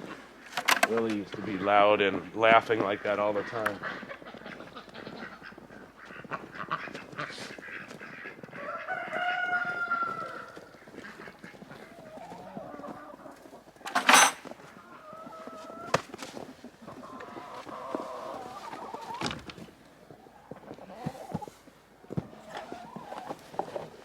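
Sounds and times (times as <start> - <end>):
hens clucking: 0.0 - 24.0.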